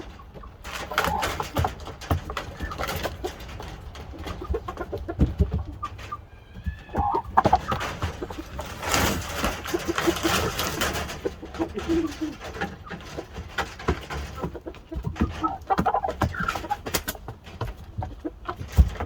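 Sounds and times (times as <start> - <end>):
knocks and scuffing: 0.0 - 10.6
chicken clucking: 0.0 - 19.0
rustling: 0.0 - 19.0.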